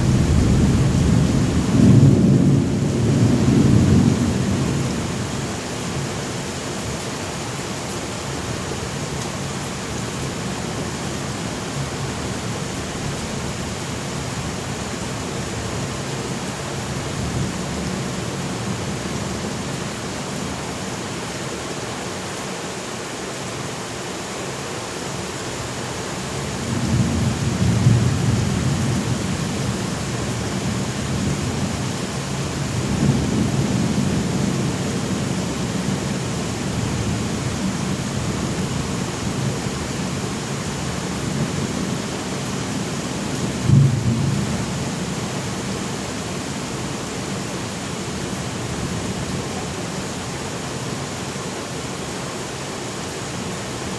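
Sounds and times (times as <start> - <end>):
thunder rumbling: 0.0 - 5.2, 43.5 - 45.2
steady rain: 0.0 - 53.9.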